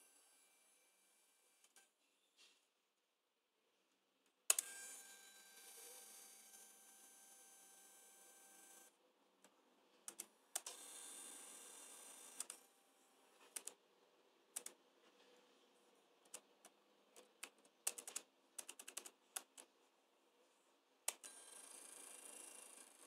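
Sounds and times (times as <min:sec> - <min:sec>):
laptop keys clicking: 0:16.2 - 0:19.7.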